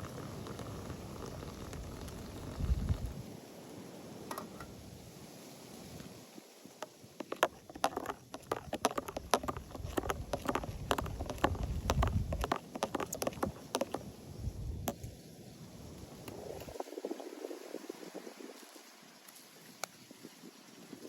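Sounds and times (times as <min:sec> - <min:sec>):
wind rumble on microphone: 0:00.0 - 0:03.4, 0:08.5 - 0:18.9
crackling and tapping clicks: 0:06.8 - 0:14.0.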